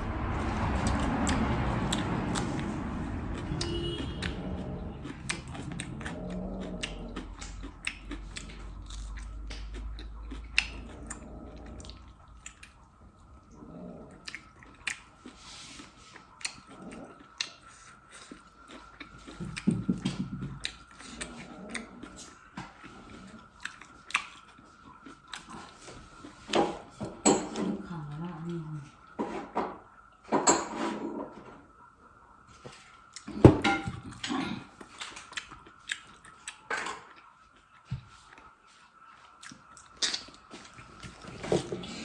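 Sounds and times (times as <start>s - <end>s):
faint high hum: 0.0s - 30.4s
person biting and chewing food: 0.2s - 12.9s, 34.0s - 38.5s, 39.3s - 42.0s
mouth clicks and smacks: 39.4s - 40.5s.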